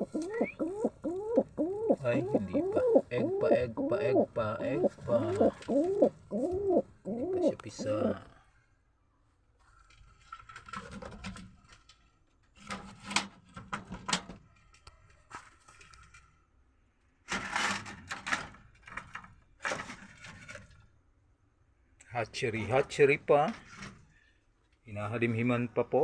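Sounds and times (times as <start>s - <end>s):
hands rustling a nest: 0.0s - 8.2s.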